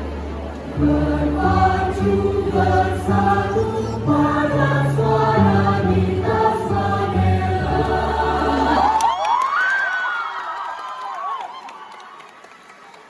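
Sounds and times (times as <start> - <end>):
choir singing: 0.0 - 9.2.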